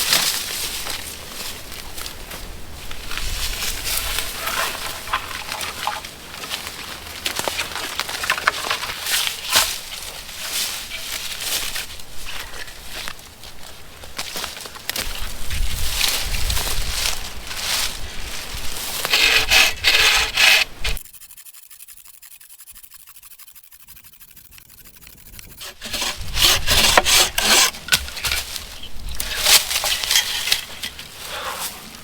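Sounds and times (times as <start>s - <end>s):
hand saw cutting wood: 3.9s - 11.8s, 18.8s - 31.9s.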